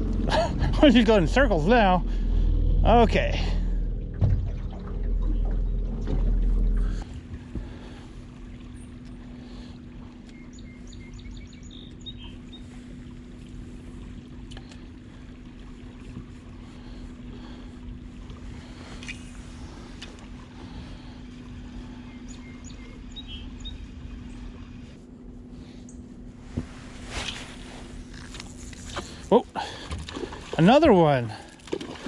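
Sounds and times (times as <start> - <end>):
boat humming: 0.0 - 32.0
boat motor droning: 0.0 - 32.0
fast river water rushing: 30.2 - 31.5.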